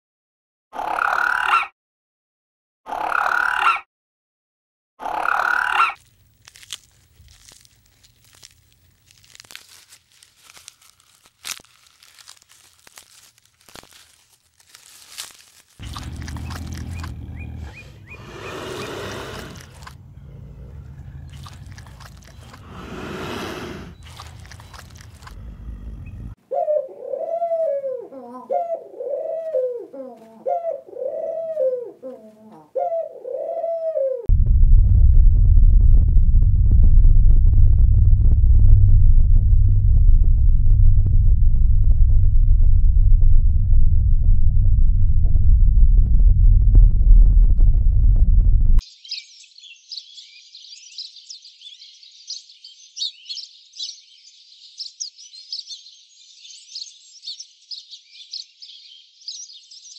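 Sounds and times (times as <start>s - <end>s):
low rumble with breathy swells: 15.8s - 18.6s, 19.6s - 21.3s, 25.2s - 26.4s, 34.3s - 48.8s
pigeons cooing: 15.8s - 34.3s.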